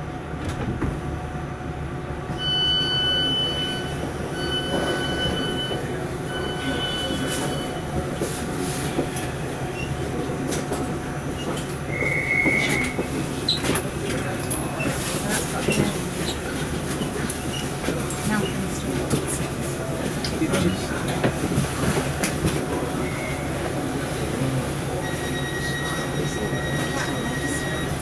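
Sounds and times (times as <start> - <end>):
train interior hum: 0.0 - 28.0
long electronic beeps: 2.4 - 7.8.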